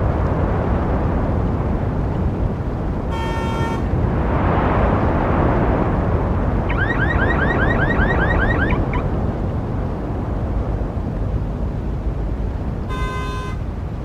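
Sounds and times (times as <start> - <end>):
road traffic: 0.0 - 14.0
short car horn toot: 3.1 - 3.9, 12.9 - 13.6
car alarm whooping: 6.7 - 9.0.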